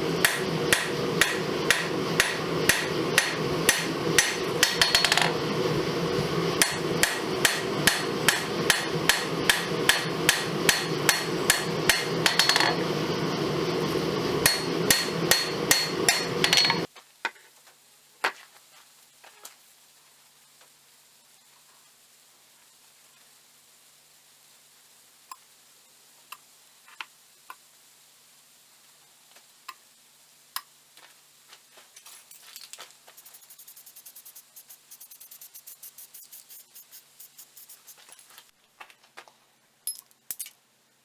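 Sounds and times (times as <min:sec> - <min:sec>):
hammer striking steel on anvil: 0:00.2 - 0:05.4, 0:06.6 - 0:12.8, 0:14.4 - 0:16.9.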